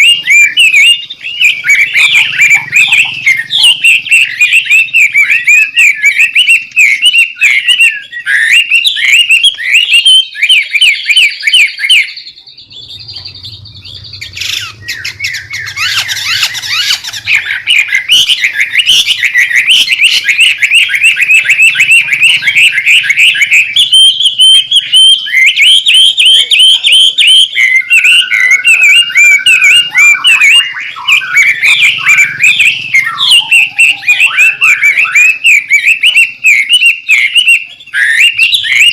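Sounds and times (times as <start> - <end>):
bird singing rapid chirps: 0.0 - 38.9
bird whistle: 0.0 - 38.9.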